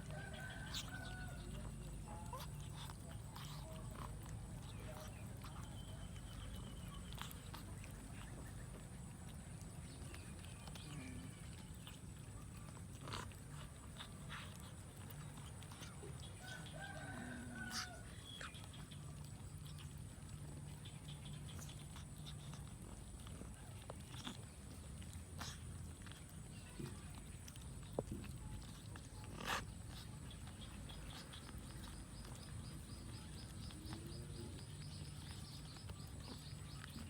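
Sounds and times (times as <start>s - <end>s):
faint animal call: 15.7s - 19.8s.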